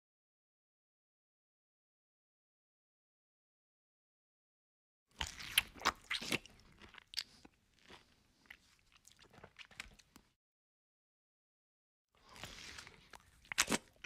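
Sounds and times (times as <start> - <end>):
food crunching: 5.2 - 10.3, 12.2 - 14.0
wet chewing: 5.2 - 10.3, 12.2 - 14.0.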